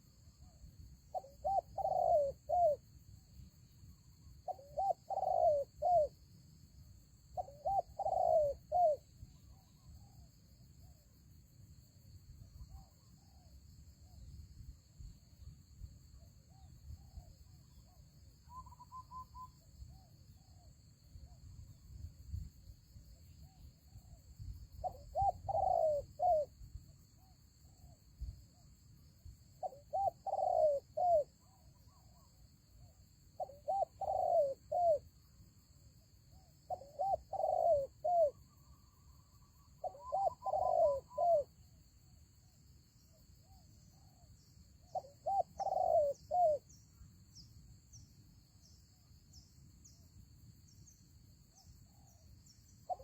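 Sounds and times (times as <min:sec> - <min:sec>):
dove cooing: 0:01.1 - 0:02.8, 0:04.5 - 0:06.1, 0:07.4 - 0:09.0, 0:24.8 - 0:26.5, 0:29.6 - 0:31.3, 0:33.4 - 0:35.0, 0:36.7 - 0:38.4, 0:39.8 - 0:41.5, 0:44.9 - 0:46.6.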